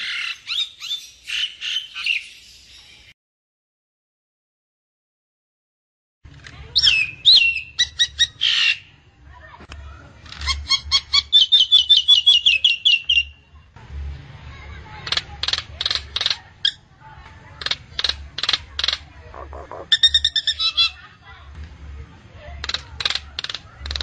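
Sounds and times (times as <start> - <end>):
myna clicking calls: 15.0 - 16.8, 17.5 - 20.9, 22.6 - 24.0.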